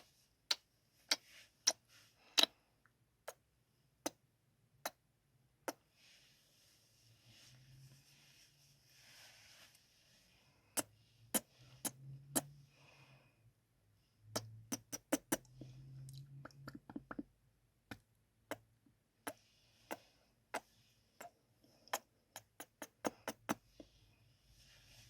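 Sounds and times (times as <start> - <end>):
wet lip smacks: 10.8 - 12.5.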